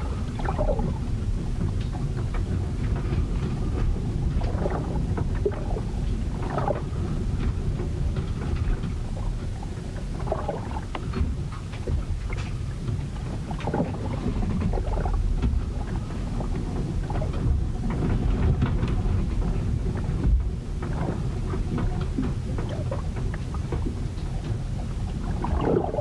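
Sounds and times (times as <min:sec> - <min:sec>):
water splashes: 0:00.0 - 0:26.0
wind and waves rumbling: 0:00.0 - 0:26.0.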